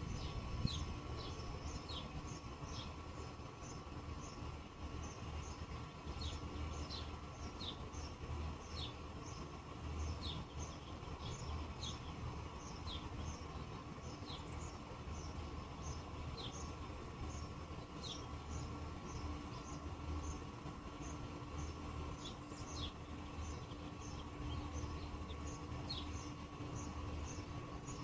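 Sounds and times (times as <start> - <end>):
low background rumble: 0.0 - 28.0
bird chirping: 21.0 - 28.0.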